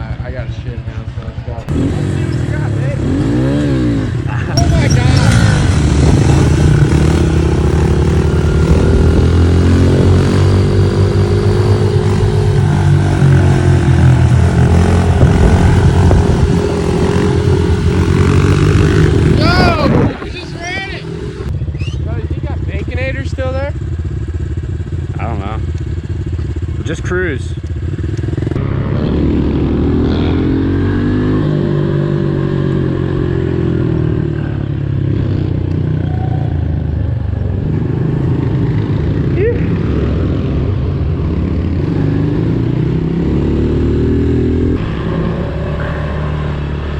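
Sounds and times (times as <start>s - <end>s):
pit bike engines running: 0.0s - 46.9s.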